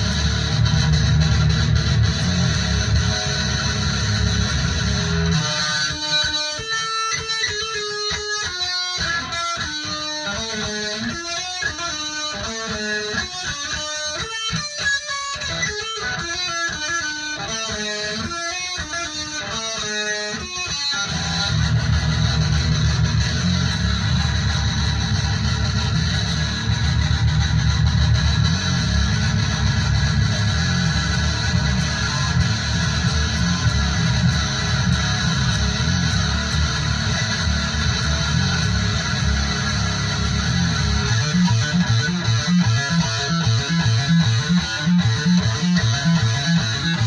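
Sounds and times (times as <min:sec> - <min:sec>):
heavy metal music: 0:00.0 - 0:08.3, 0:20.4 - 0:47.0
fast melodic guitar passage: 0:00.0 - 0:47.0.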